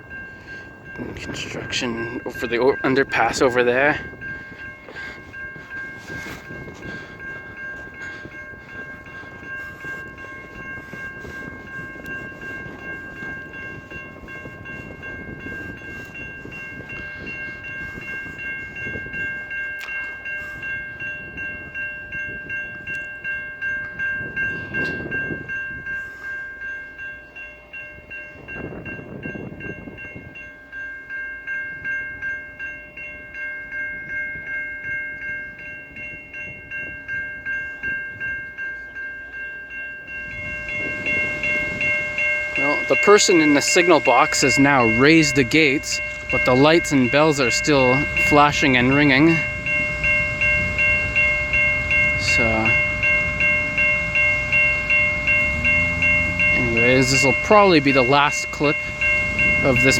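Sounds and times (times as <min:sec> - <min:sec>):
railway crossing bell ringing: 0:00.0 - 0:59.9
passing traffic: 0:40.1 - 0:59.9.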